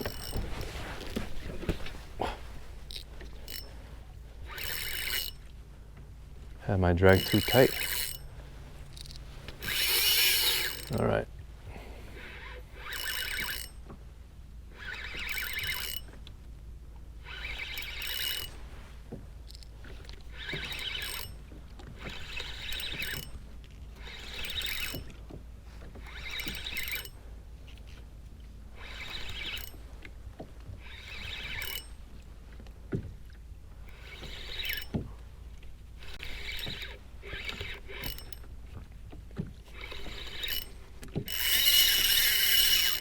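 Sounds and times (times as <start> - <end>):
fishing reel whining and ratcheting: 0.0 - 1.8, 2.8 - 3.8, 4.4 - 5.5, 7.1 - 11.0, 12.2 - 14.0, 14.7 - 16.3, 17.2 - 18.6, 19.4 - 32.2, 33.8 - 35.1, 36.0 - 38.8, 39.6 - 43.0.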